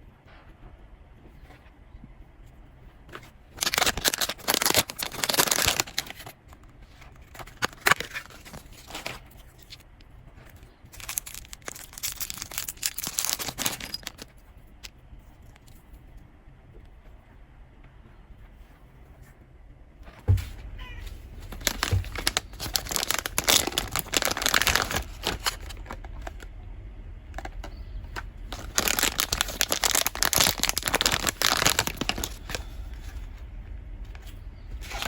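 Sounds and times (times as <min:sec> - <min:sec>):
packaging tearing and crinkling: 0:03.5 - 0:06.4, 0:07.1 - 0:09.8, 0:10.9 - 0:14.3, 0:20.3 - 0:26.5, 0:27.4 - 0:33.3, 0:34.1 - 0:35.0.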